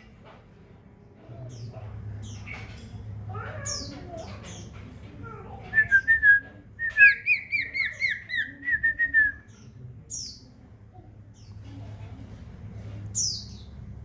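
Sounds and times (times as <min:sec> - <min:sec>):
bird whistling song: 0:05.7 - 0:09.6.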